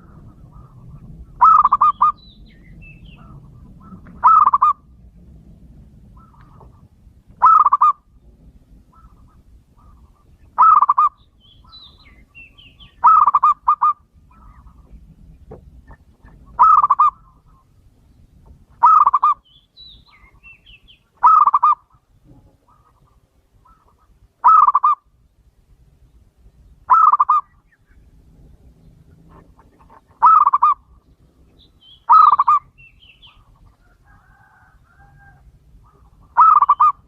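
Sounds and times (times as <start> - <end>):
dove cooing: 0.0 - 2.2, 3.2 - 4.9, 6.1 - 8.1, 8.9 - 11.2, 12.8 - 15.0, 15.9 - 17.7, 18.8 - 19.4, 21.2 - 25.1, 26.9 - 27.5, 29.1 - 30.9, 32.1 - 37.0
high bird chirps: 10.6 - 14.9, 18.8 - 21.9, 30.2 - 33.5, 35.9 - 37.0.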